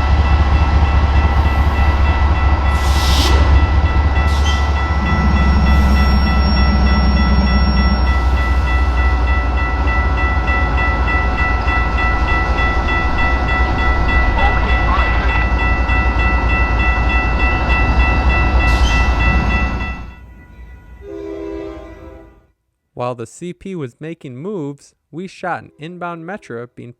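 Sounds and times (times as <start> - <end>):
diesel locomotive rumble: 0.0 - 20.3
high-pitched steady tones: 1.4 - 9.1.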